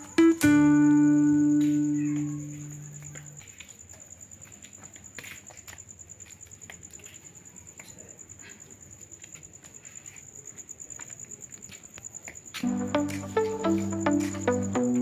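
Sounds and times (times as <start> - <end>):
music: 0.0 - 3.2, 12.6 - 15.0
high-pitched trill: 12.6 - 15.0.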